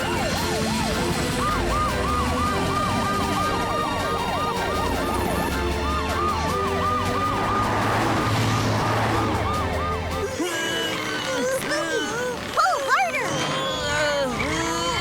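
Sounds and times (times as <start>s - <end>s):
cartoon sirens yelping: 0.0s - 15.0s
rushing noise: 6.9s - 9.6s.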